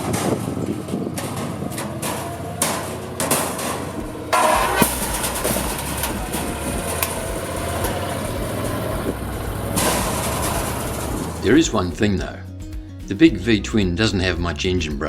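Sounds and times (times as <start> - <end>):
sharp knocks and rattles: 0.0 - 11.8
utility vehicle engine running: 0.0 - 12.3.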